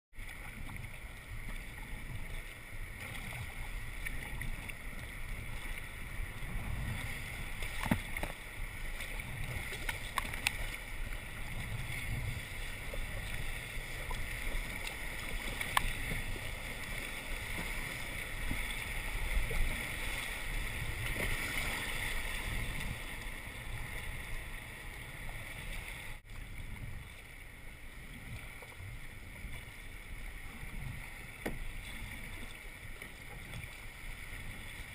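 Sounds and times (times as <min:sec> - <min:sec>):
river water flowing: 0:00.2 - 0:34.9.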